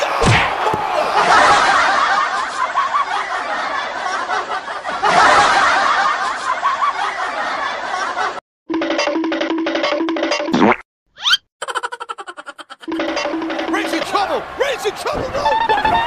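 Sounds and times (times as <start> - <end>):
group of people laughing: 0.7 - 8.4, 11.6 - 13.2.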